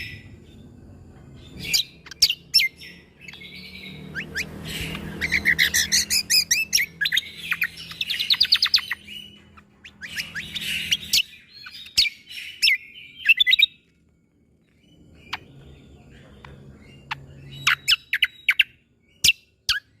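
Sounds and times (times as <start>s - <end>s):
songbird singing sharp clipped notes: 1.5s - 13.9s.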